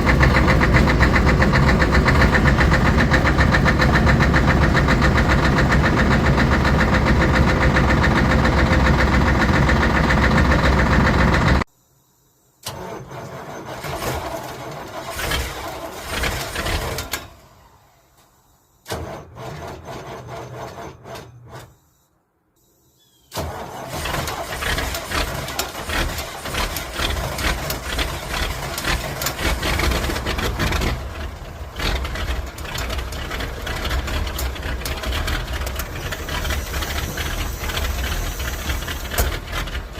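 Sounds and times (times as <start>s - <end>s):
diesel truck engine running: 0.0s - 11.7s, 24.3s - 39.9s
engine rapid knocking: 0.0s - 11.7s, 23.9s - 39.9s.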